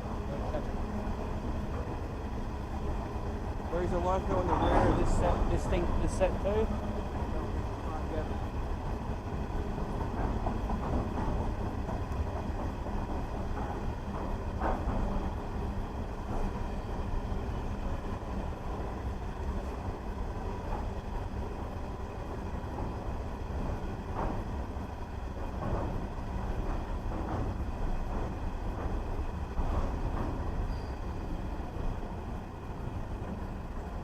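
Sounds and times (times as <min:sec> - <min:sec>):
freight train rumbling on rails: 0:00.0 - 0:34.0
train wheel clicks: 0:08.2 - 0:34.0.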